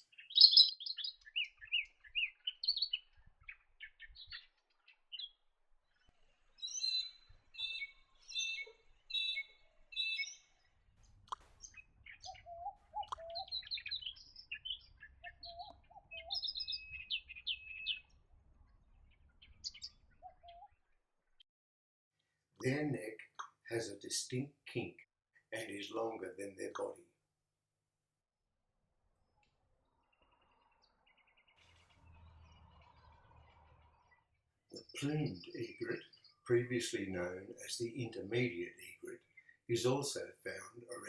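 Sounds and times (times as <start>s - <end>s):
lower whistled bird calls: 0.0s - 5.4s, 6.0s - 10.7s, 11.3s - 18.1s
birds chirping and trilling: 0.0s - 21.4s, 22.7s - 27.0s, 29.2s - 41.0s.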